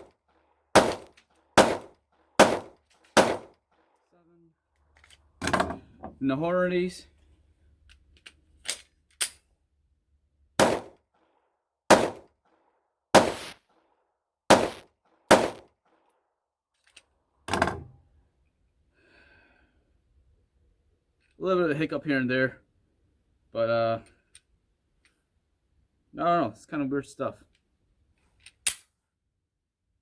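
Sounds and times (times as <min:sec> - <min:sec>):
single gunshots: 0:00.7 - 0:03.6, 0:10.6 - 0:11.0, 0:11.9 - 0:12.3, 0:13.2 - 0:13.6, 0:14.5 - 0:15.7.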